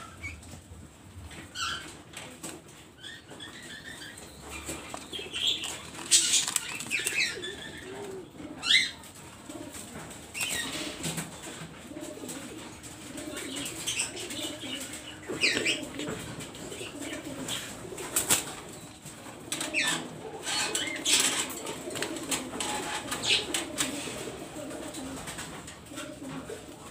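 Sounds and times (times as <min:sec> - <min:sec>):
doves cooing: 0:00.0 - 0:26.9
wings flapping: 0:04.4 - 0:08.2, 0:09.1 - 0:26.5.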